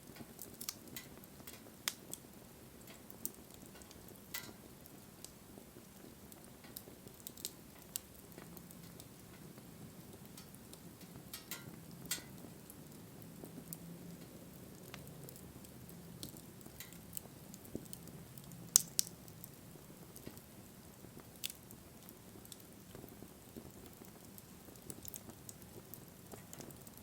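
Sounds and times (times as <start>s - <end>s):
low rumble of flame: 0.0s - 27.0s
wood fire crackling and popping: 0.0s - 27.0s.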